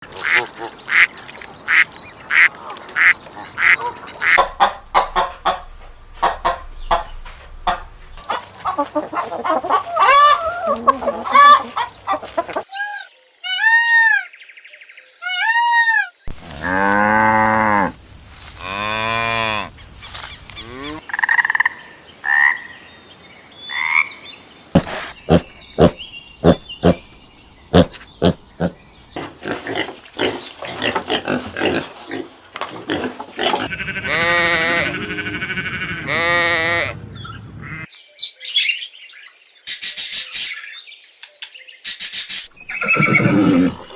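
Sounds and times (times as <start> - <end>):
rising and falling animal calls: 1.7 - 14.3, 33.6 - 37.9, 42.6 - 43.9.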